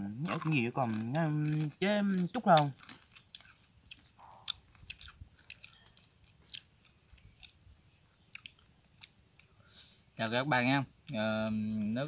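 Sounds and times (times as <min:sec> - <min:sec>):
person chewing crunchy food: 0:00.2 - 0:09.6.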